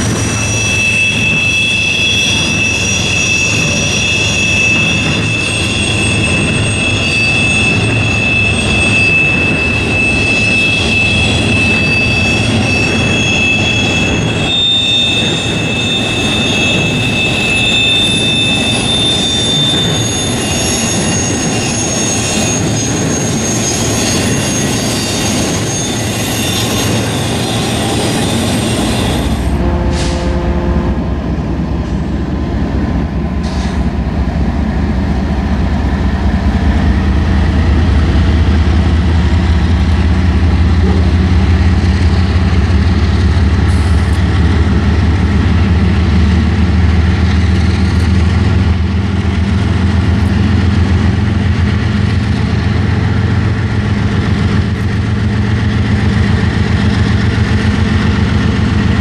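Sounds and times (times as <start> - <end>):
train wheels squealing: 0.0 - 30.4, 31.3 - 59.0
low engine drone: 29.5 - 33.8, 58.7 - 59.0.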